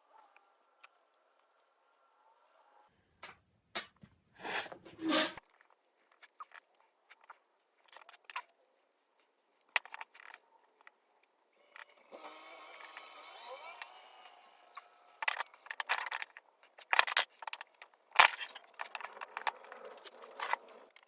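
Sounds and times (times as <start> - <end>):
rasping strokes: 4.4 - 5.4.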